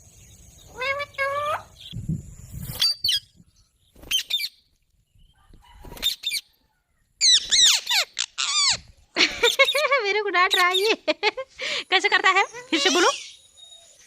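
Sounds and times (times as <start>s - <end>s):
parrot squawking: 0.7s - 1.7s, 7.2s - 9.8s.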